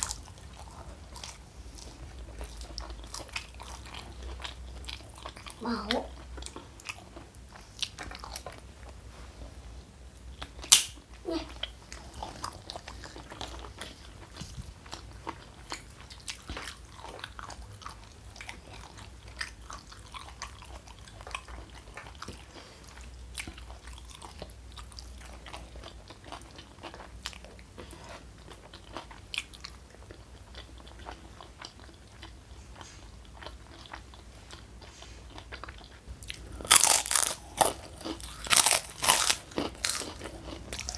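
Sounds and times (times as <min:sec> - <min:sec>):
chewing and biting food: 0:11.6 - 0:40.9.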